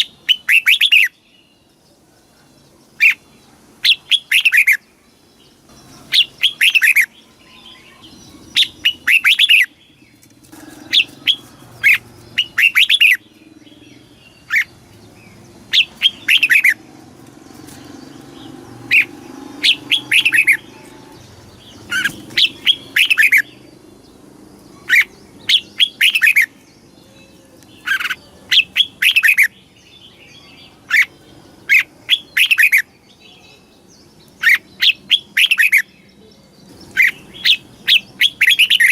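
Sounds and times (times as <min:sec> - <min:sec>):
bird singing whistled phrases: 0:00.0 - 0:01.2, 0:18.9 - 0:21.2, 0:37.0 - 0:38.9.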